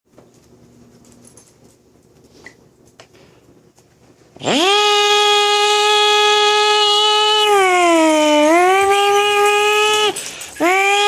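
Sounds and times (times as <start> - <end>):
faint clicks and shuffling: 0.1 - 4.4
man imitating a vacuum cleaner: 4.4 - 11.0.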